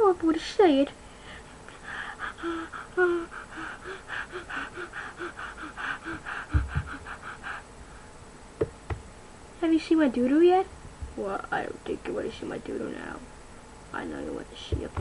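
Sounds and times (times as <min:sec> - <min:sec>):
person gasping and sobbing: 0:01.7 - 0:07.7.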